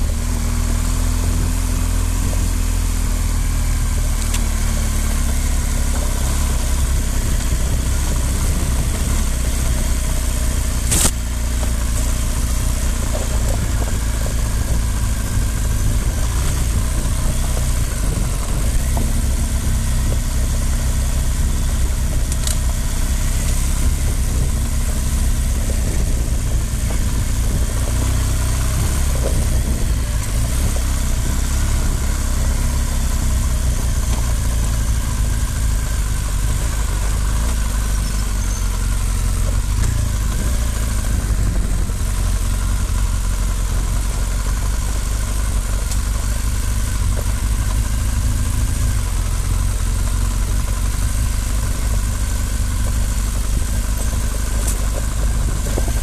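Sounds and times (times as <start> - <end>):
constant rumble: 0.0 - 56.0
motorcycle engine running: 0.0 - 56.0.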